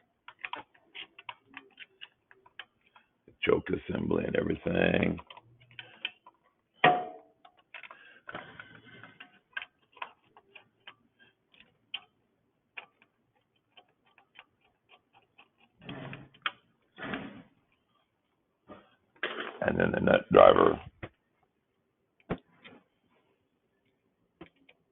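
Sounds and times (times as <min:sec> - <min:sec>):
rustling and handling: 0:00.0 - 0:06.8, 0:07.4 - 0:19.6.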